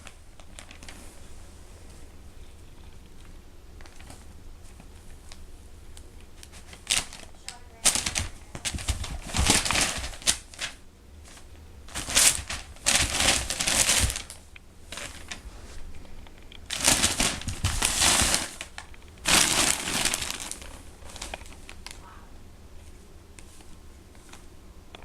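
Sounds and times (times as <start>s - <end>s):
newspaper rustling and crinkling: 0.0s - 2.0s, 6.4s - 22.0s.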